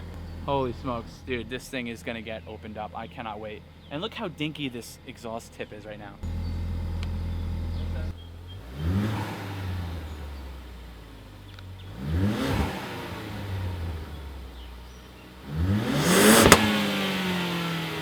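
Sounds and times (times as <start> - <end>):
car engine revving: 8.6 - 10.1, 11.8 - 18.0
exhaust pop: 15.8 - 17.2.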